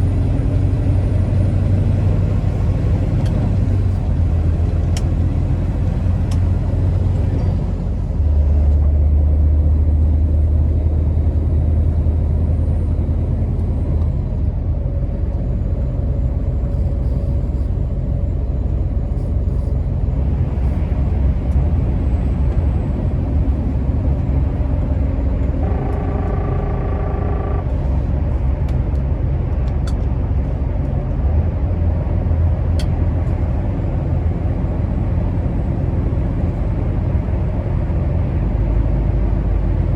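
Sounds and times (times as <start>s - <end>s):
diesel truck engine drone: 0.0s - 39.9s
brief pitched tone: 25.6s - 27.8s.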